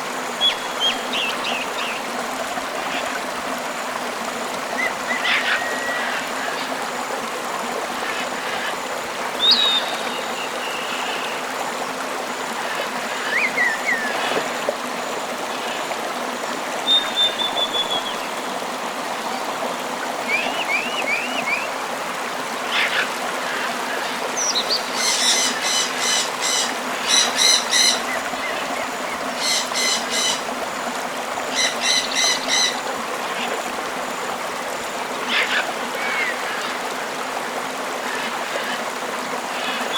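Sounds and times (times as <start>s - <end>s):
river flowing: 0.0s - 39.9s
bird chirps and whistles: 16.9s - 18.2s.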